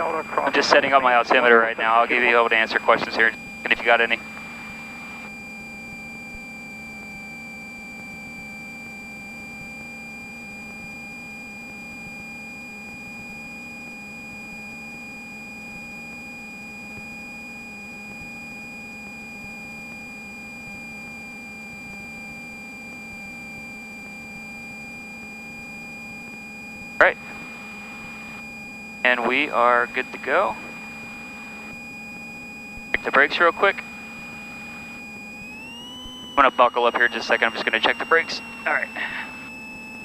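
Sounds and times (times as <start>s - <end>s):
faint aircraft engine hum: 0.0s - 40.0s
high-pitched electronic tone: 32.9s - 40.0s.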